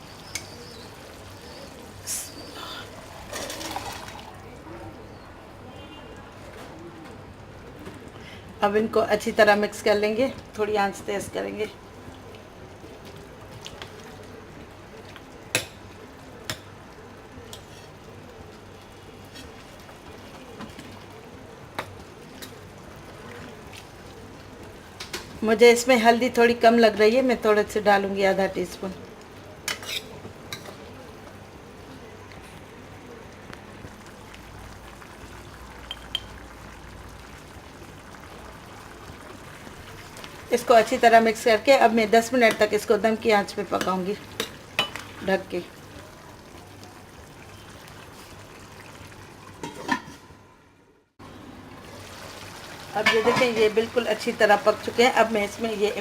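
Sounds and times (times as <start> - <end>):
curry bubbling in a pot: 0.0 - 8.6, 9.2 - 50.2, 51.2 - 56.0.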